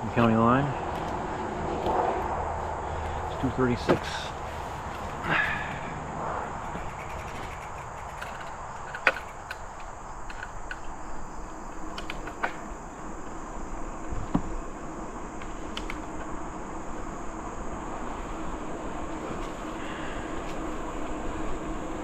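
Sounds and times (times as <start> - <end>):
bicycle rolling on trail: 0.0 - 22.0
insects droning: 0.0 - 22.0
bike clicks and knocks: 3.0 - 5.8, 6.6 - 13.4, 15.4 - 16.3.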